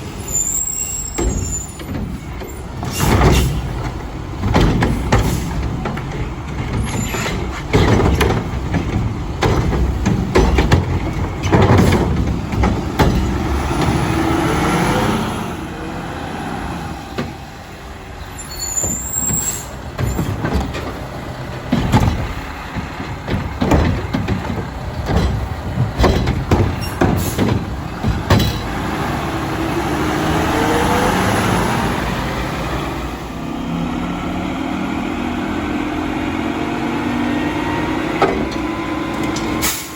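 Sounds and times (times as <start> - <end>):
metal clanks and bangs: 0.0 - 15.0, 18.4 - 30.1, 37.8 - 39.9
garbage truck diesel engine revving: 0.0 - 39.9.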